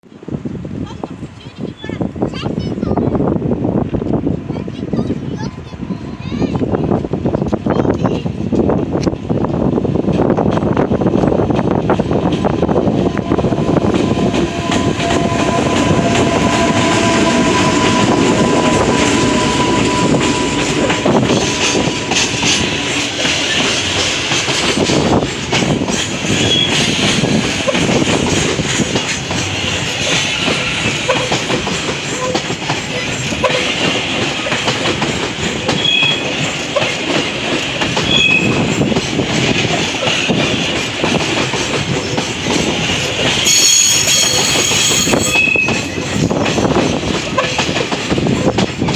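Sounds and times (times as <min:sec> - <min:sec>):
train wheels rumbling on rails: 0:00.0 - 0:48.9
clickety-clack over rail joints: 0:00.2 - 0:48.9
steady whine: 0:11.9 - 0:26.3
high-pitched wheel squeals: 0:14.1 - 0:23.8, 0:26.4 - 0:26.9, 0:35.8 - 0:36.2, 0:38.1 - 0:38.6, 0:43.4 - 0:46.4.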